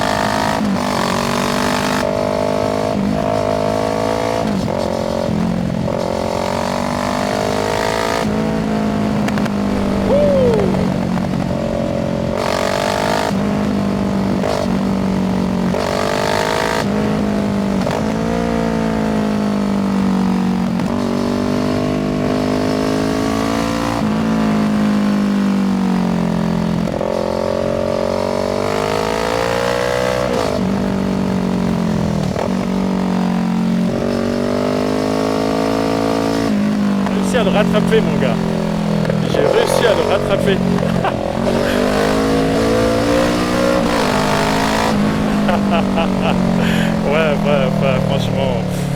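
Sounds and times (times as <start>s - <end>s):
motorcycle engine accelerating: 0.0s - 24.6s, 30.2s - 48.9s.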